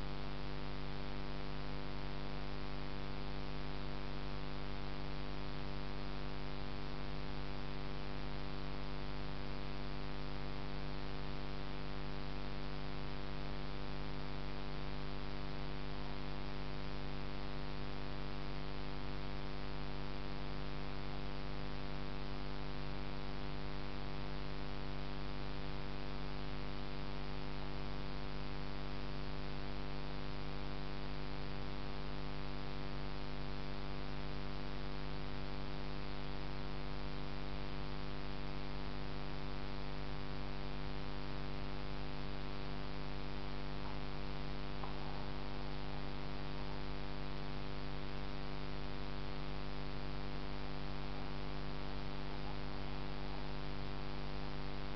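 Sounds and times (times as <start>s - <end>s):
electrical hum: 37.1s - 54.9s
constant hiss: 38.8s - 54.9s.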